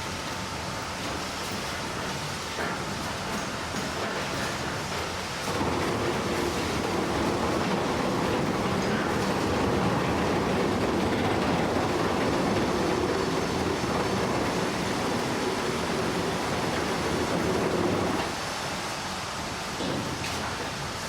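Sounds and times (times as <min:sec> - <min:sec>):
heavy vehicle rumble: 0:05.6 - 0:18.3.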